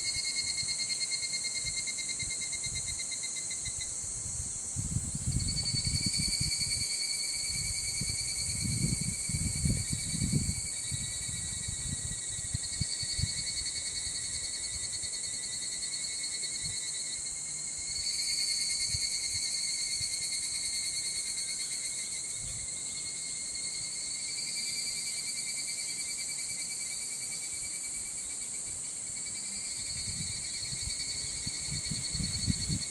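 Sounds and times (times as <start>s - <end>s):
wind rumble on microphone: 3.7s - 6.9s, 7.5s - 14.8s, 29.8s - 32.9s
insects shrilling: 19.4s - 32.9s.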